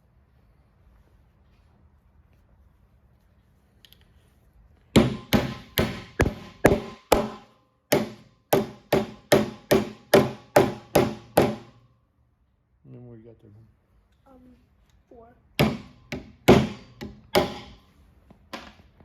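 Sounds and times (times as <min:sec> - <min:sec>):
hammer striking copper cap: 0:05.0 - 0:11.7, 0:15.6 - 0:17.8.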